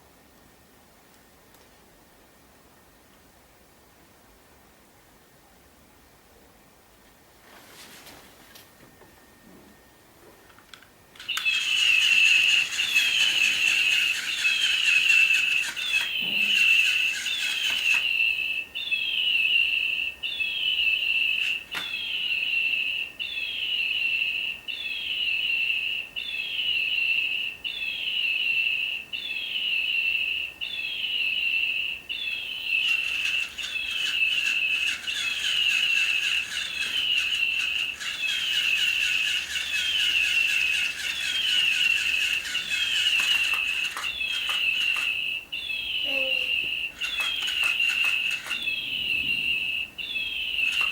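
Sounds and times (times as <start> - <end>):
wing-flapping mechanism whir: 11.2 - 18.2, 32.7 - 45.4, 46.9 - 49.4, 50.4 - 50.9
electronic toy bird tweeting: 11.2 - 50.9.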